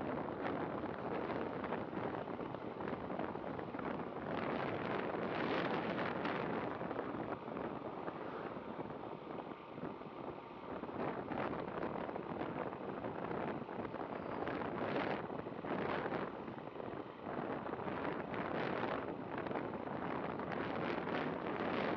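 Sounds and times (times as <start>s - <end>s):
road noise: 0.0s - 21.9s
wind buffeting microphone: 0.0s - 21.9s
passing vehicles: 0.1s - 12.9s.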